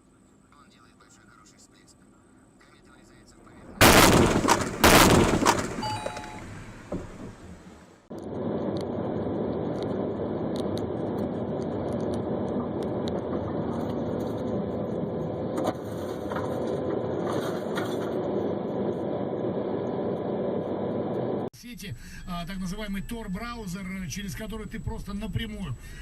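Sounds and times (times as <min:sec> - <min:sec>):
car engine and road noise: 0:02.0 - 0:21.5.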